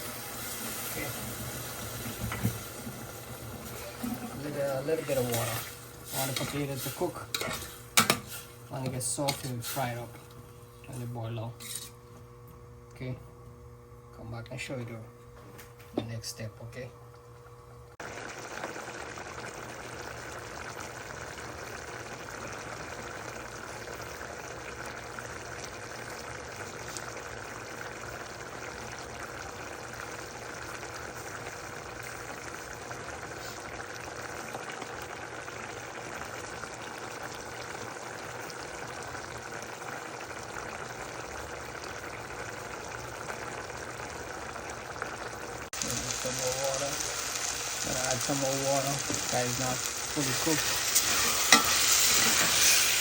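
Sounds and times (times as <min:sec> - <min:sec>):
pot of water boiling: 0:00.0 - 0:15.0, 0:15.6 - 0:53.0.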